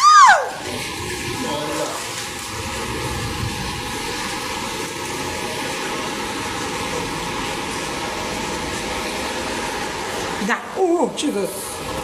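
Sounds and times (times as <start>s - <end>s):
rainwater rushing and pouring: 0.0s - 12.0s.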